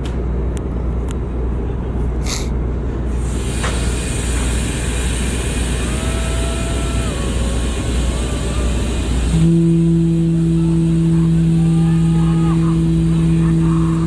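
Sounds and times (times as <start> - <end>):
engine rumble: 0.0 - 14.0
ferry horn deep blast: 9.1 - 14.0.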